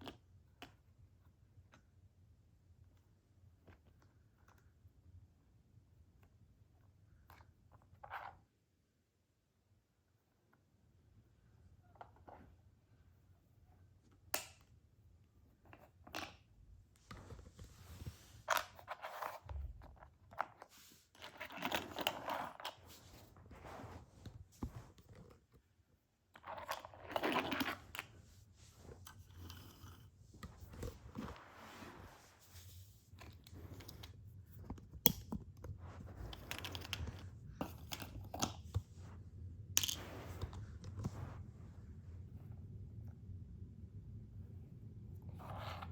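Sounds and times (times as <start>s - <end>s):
low steady hum: 8.7s - 45.9s
rustling: 20.6s - 25.7s, 26.4s - 39.2s.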